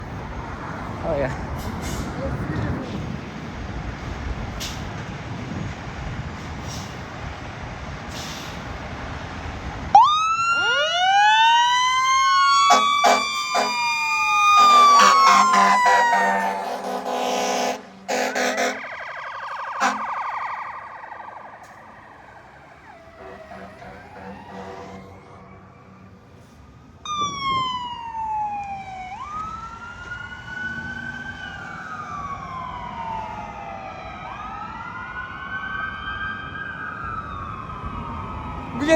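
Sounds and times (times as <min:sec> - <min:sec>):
fire truck sirens wailing: 0:00.0 - 0:38.9
vehicle rumble: 0:00.0 - 0:38.9
horn blasts: 0:12.7 - 0:13.8, 0:14.6 - 0:19.0, 0:19.7 - 0:20.3, 0:23.1 - 0:25.6.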